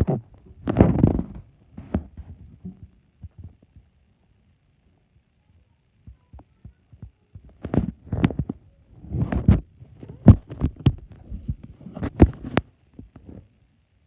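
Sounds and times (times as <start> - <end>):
muffled fireworks thumps and bangs: 6.1 - 13.2.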